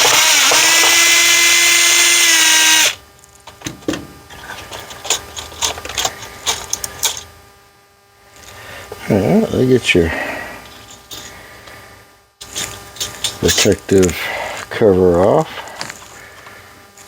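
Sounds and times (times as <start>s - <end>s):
electric screwdriver whining: 0.0s - 3.0s
screw and plastic rattling: 4.3s - 7.3s, 12.4s - 13.7s.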